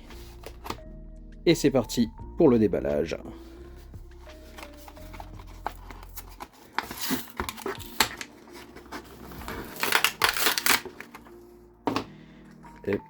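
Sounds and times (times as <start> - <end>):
packaging crinkling and tearing: 4.5 - 11.4.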